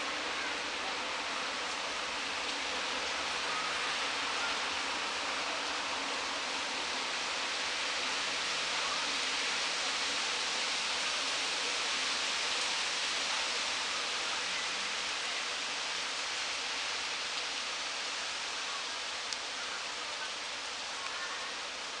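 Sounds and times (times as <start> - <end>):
wind rustling tree foliage: 0.0 - 22.0
faint tick: 19.3 - 19.5, 21.0 - 21.2.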